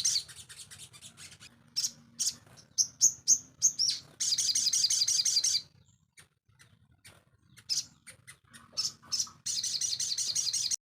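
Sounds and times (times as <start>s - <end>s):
bird chirps: 0.0s - 10.8s
songbird high trill: 1.2s - 5.7s.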